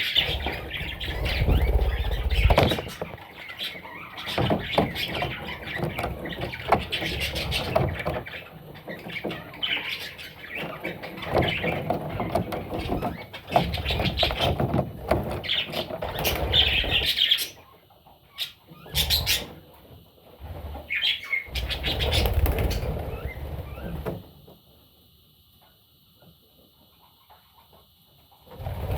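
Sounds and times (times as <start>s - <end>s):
budgerigar chicks chirping: 0.0s - 19.6s, 20.7s - 23.9s
wings flapping: 0.2s - 3.4s, 21.5s - 24.2s.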